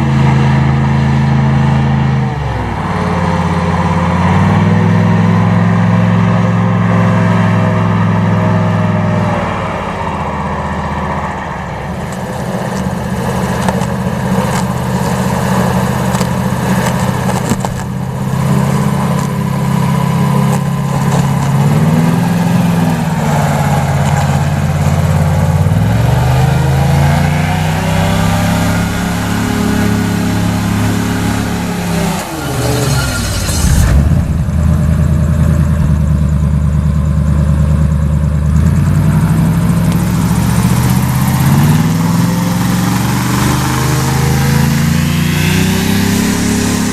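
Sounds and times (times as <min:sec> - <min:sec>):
airboat engine and propeller: 0:00.0 - 0:46.9.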